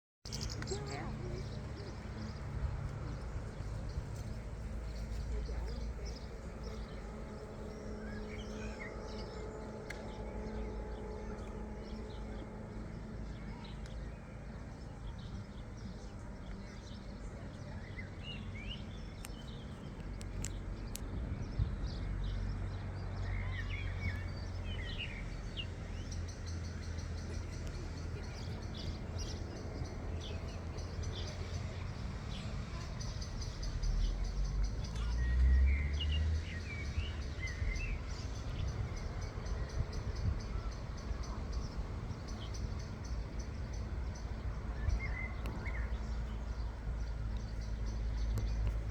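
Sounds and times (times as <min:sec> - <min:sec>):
bird chirps: 0:00.3 - 0:02.5
steady low rumble: 0:00.3 - 0:48.9.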